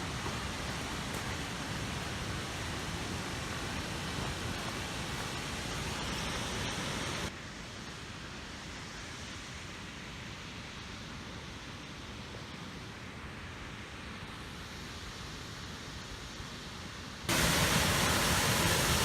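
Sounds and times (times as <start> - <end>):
waterfall roaring: 0.0 - 7.3, 17.3 - 19.0.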